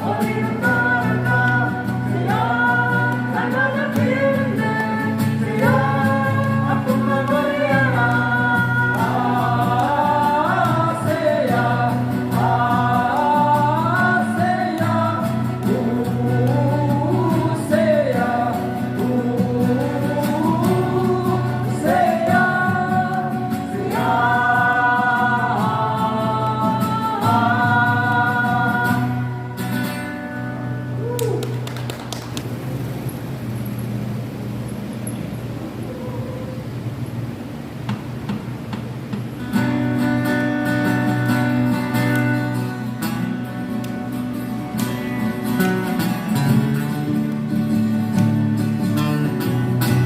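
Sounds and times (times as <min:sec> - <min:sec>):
voices singing together: 0:00.0 - 0:30.1.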